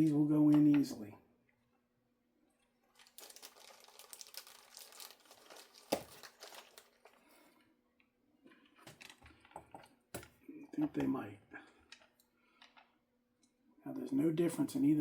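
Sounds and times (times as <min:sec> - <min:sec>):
crinkling and rustling of parts: 0:02.4 - 0:13.6.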